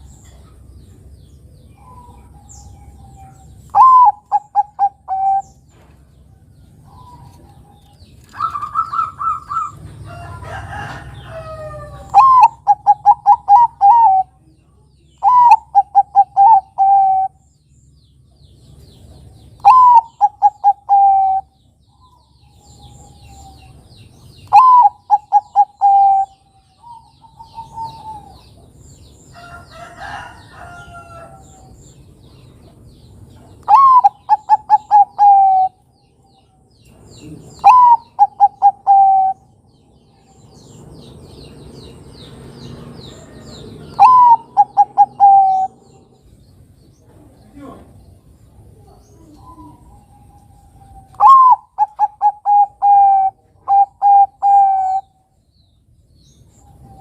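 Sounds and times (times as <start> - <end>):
dove cooing: 1.8 - 5.6, 6.9 - 9.9, 10.7 - 14.4, 15.2 - 17.4, 19.6 - 21.5, 24.4 - 28.6, 33.6 - 35.8, 37.2 - 39.6, 43.3 - 46.0, 48.8 - 55.2
faint bird calls: 19.6 - 28.7, 33.3 - 39.5, 43.1 - 46.3, 46.9 - 55.3.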